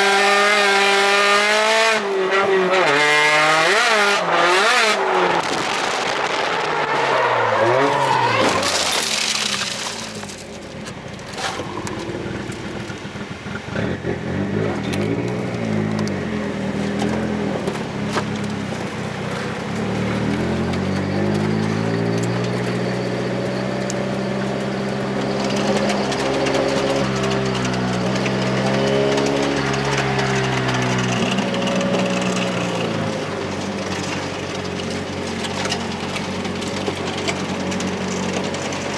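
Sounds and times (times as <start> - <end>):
car engine revving: 0.0 - 10.4, 11.2 - 38.9
tyres squealing: 2.0 - 10.3.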